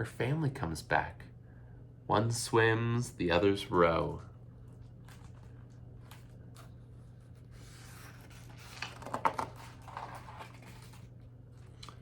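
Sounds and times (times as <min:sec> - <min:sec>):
steady low hum: 0:00.0 - 0:12.0
paper rustling: 0:04.8 - 0:12.0.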